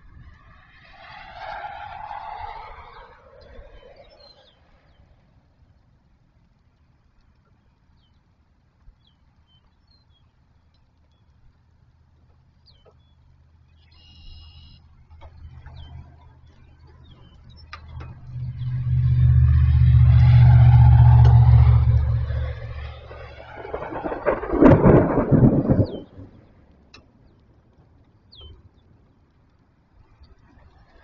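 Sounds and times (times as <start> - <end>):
vehicle passing by: 0.2 - 5.0, 15.5 - 25.8
faint birds chirping: 2.5 - 23.4, 25.8 - 31.0.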